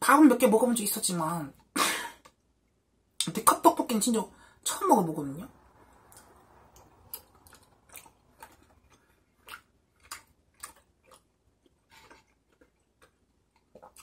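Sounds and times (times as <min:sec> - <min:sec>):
chewing with wet mouth clicks: 0:06.1 - 0:14.0.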